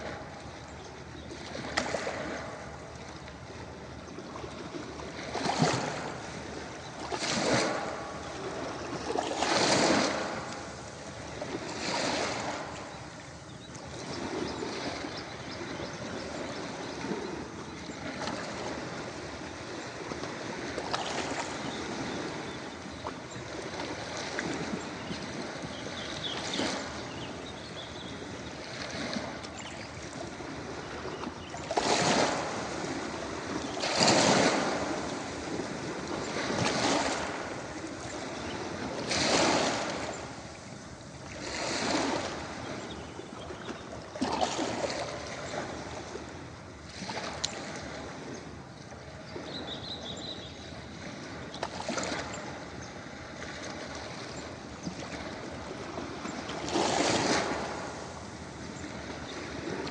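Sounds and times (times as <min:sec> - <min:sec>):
ocean waves surging onto beach: 0:00.0 - 0:59.9.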